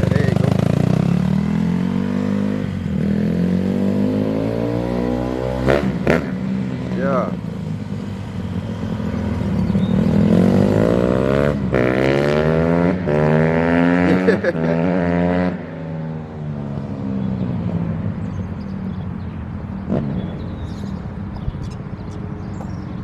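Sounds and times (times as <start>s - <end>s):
dirt bike engine accelerating: 0.0s - 15.8s.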